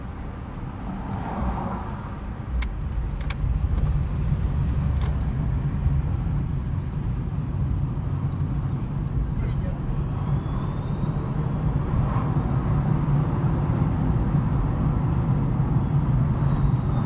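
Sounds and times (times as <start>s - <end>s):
light regular ticking: 0.0s - 5.4s
road and tyre rumble: 0.0s - 17.0s
sharp clicks: 0.1s - 5.3s.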